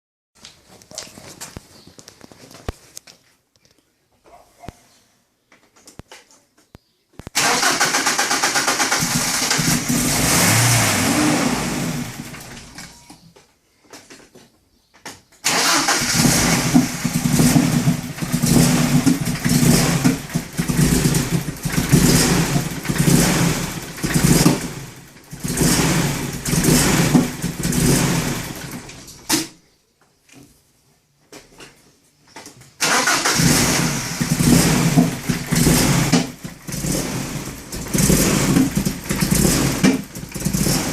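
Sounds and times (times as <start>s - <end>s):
car engine idling roughly: 16.0s - 28.8s, 33.4s - 40.9s.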